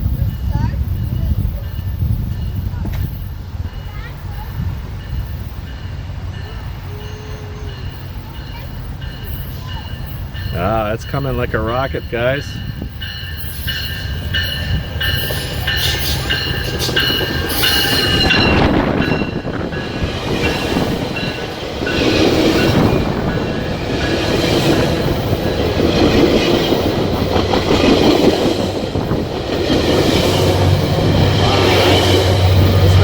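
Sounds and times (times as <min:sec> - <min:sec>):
train rushing by: 0:00.0 - 0:33.0.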